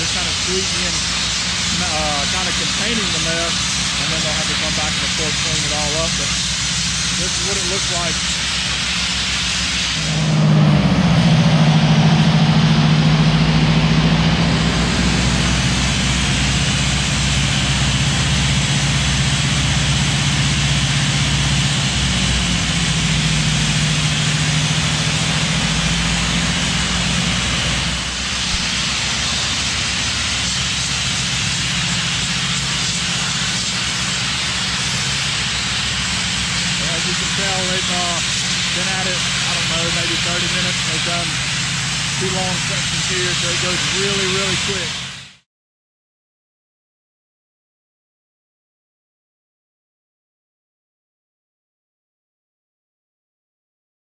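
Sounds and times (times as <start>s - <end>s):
loud high-pressure air hiss: 0.0s - 45.4s
low machine hum: 0.0s - 45.4s.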